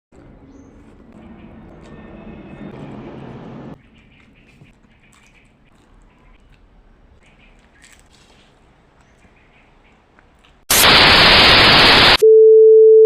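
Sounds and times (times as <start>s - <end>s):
loud white-noise static: 10.7s - 12.2s.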